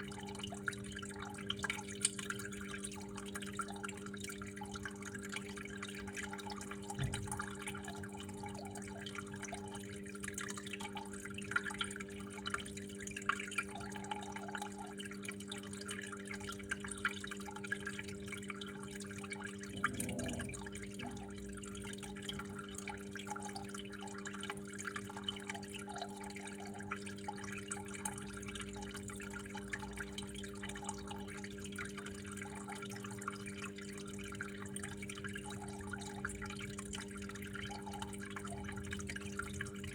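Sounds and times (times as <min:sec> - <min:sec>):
water trickling and dripping: 0:00.0 - 0:39.9
steady low hum: 0:19.6 - 0:21.9.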